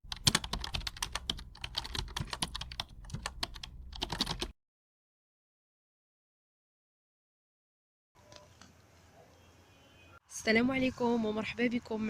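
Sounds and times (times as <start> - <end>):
keyboard typing clicks: 0.1 - 4.5.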